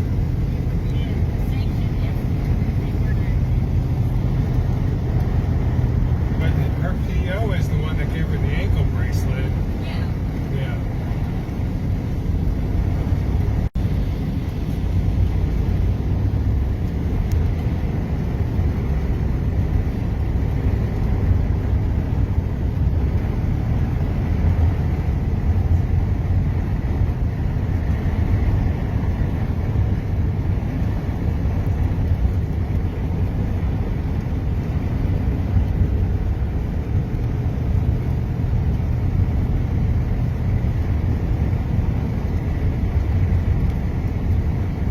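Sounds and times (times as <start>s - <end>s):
car driving rumble: 0.0s - 44.9s.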